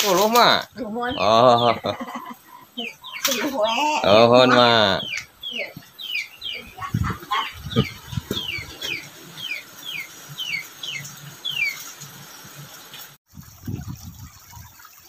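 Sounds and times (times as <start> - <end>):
bird peeping: 2.5 - 11.9
low thumps: 6.7 - 8.9.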